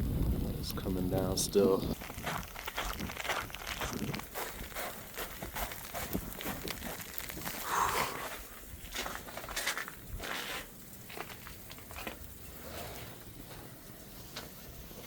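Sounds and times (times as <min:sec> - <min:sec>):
footsteps crunching in snow: 0:01.9 - 0:12.2.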